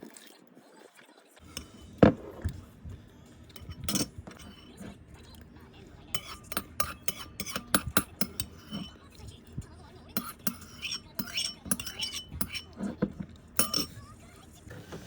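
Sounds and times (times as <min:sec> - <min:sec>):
cutlery clinking against dish: 0:01.4 - 0:02.7, 0:03.5 - 0:09.3, 0:10.1 - 0:14.1.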